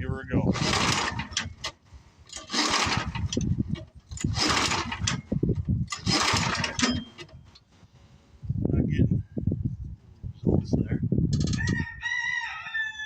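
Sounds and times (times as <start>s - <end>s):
engine cranking with rope pulls: 0.5s - 7.6s
recoil starter rasp: 0.5s - 7.7s.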